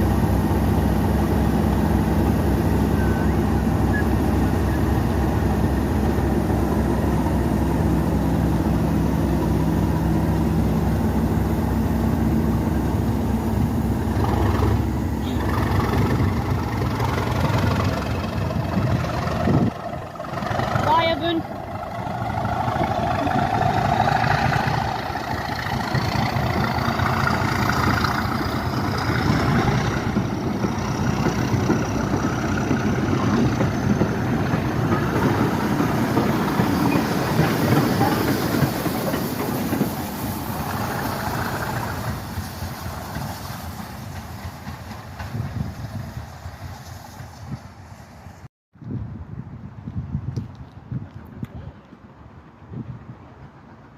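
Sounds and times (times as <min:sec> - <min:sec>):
train engine and wheel rumble: 0:00.0 - 0:53.9.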